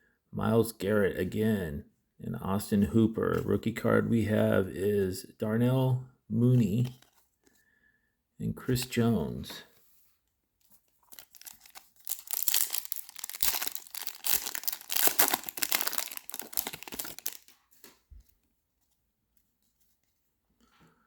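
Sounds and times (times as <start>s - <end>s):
foil wrapper tearing and crinkling: 11.0s - 17.6s.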